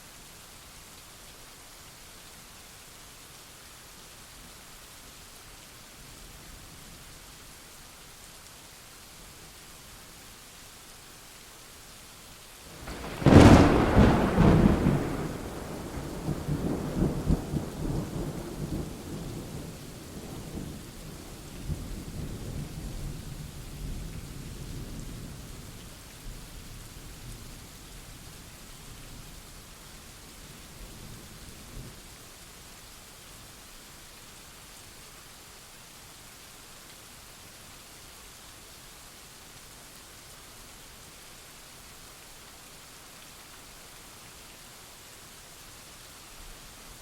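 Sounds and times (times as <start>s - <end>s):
rain hissing: 12.4s - 35.8s
thunder clap and rumbling: 12.8s - 20.6s.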